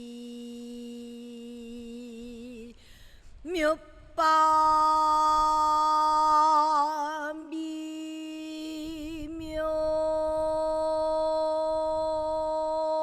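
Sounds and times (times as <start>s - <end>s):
person singing with vibrato: 0.0s - 2.8s, 3.4s - 13.0s.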